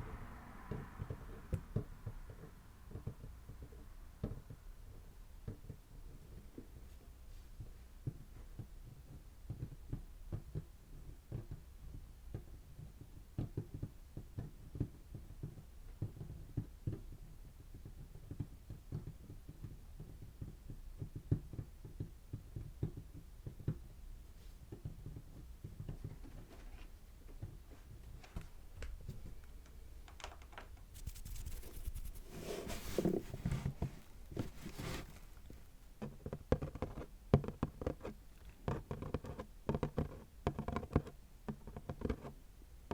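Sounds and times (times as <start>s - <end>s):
scratching: 31.0s - 35.7s.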